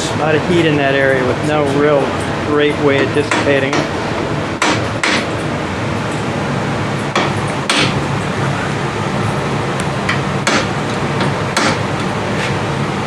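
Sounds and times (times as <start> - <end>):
steady hum: 0.0 - 13.0
hammer striking steel: 2.9 - 3.9, 4.6 - 5.3, 7.1 - 8.0, 10.1 - 11.9.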